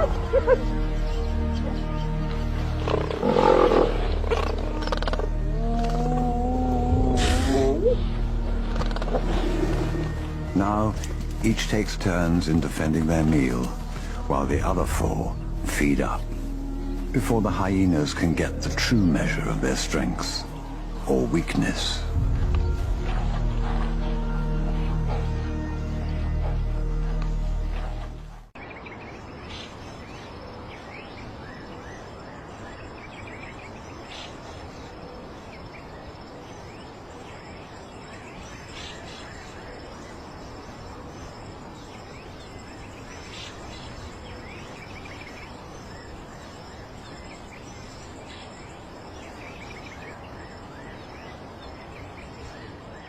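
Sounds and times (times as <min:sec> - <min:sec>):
insect calls: 0:00.0 - 0:53.0
steady background hiss: 0:28.6 - 0:53.0.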